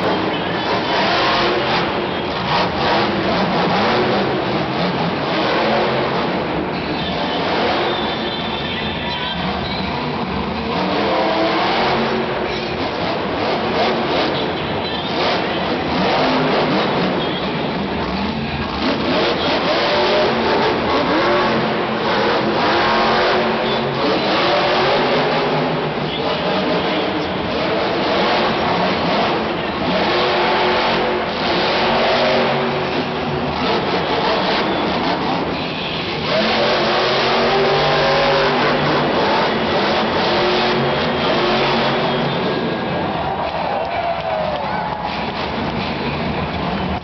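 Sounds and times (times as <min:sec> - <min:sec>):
truck engine revving hard: 0:00.0 - 0:08.6, 0:09.4 - 0:47.0.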